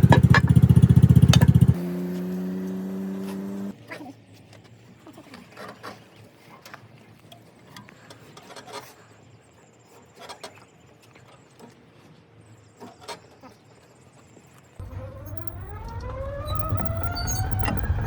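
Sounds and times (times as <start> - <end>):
tools clicking and knocking on gearbox: 0.0 - 1.7.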